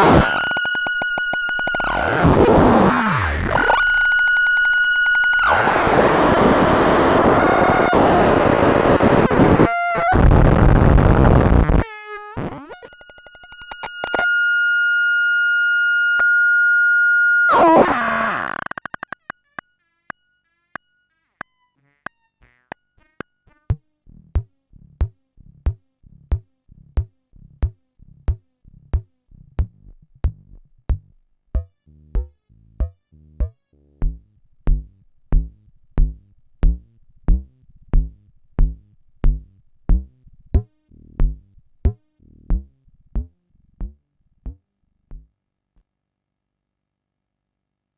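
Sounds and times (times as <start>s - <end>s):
synthesizer percussive pattern: 0.0s - 4.0s.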